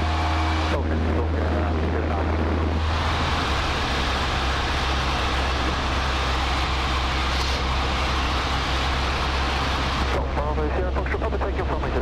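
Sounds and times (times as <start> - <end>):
aircraft engine droning: 0.0 - 12.0
rushing air noise: 2.3 - 10.2.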